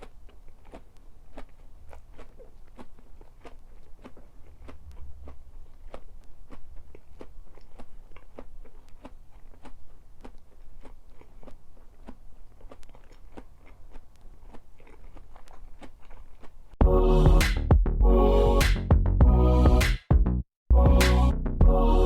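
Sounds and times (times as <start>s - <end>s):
chewing food: 0.0s - 16.8s.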